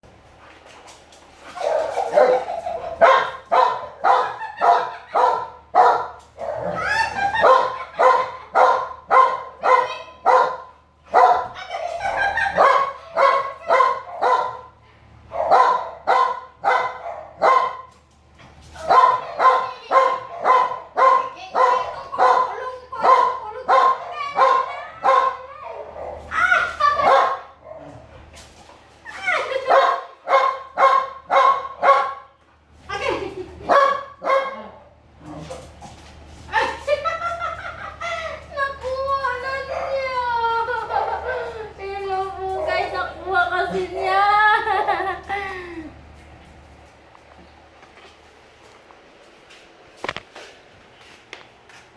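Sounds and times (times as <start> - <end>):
dog barking: 1.6 - 11.6, 12.6 - 14.7, 15.3 - 17.9, 18.9 - 26.2, 27.0 - 28.0, 29.7 - 32.3, 33.7 - 34.8
dog crying: 6.6 - 8.7.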